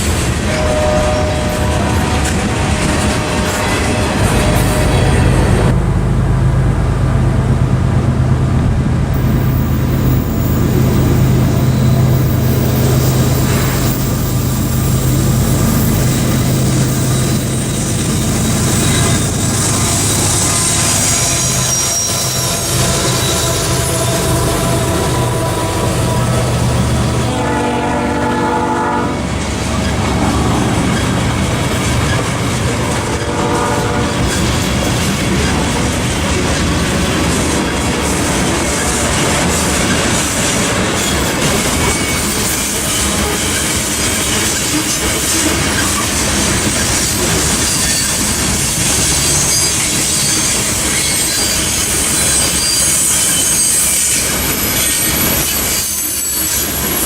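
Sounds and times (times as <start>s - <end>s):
broad rushing noise: 0.0s - 42.0s
diesel locomotive engine drone: 0.0s - 57.0s
train rumbling on rails: 0.0s - 57.0s
locomotive horn blasts: 0.4s - 5.8s, 18.8s - 31.3s, 32.6s - 34.6s.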